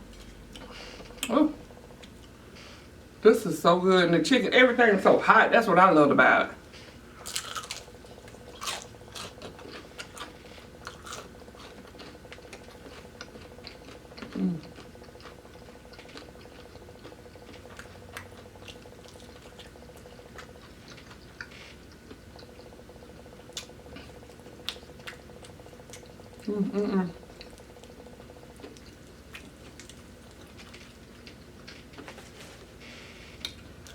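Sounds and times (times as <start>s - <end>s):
chewing crunchy food: 7.2s - 26.5s, 27.1s - 33.9s
low voice hum: 14.3s - 14.7s, 26.4s - 27.2s.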